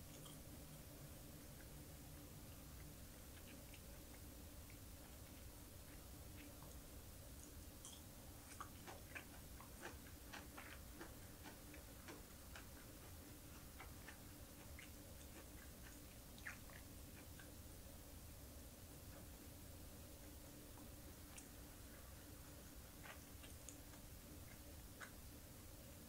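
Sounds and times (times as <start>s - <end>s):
chewing clicks and crackles: 0.0s - 0.9s, 2.5s - 17.6s, 20.7s - 25.5s.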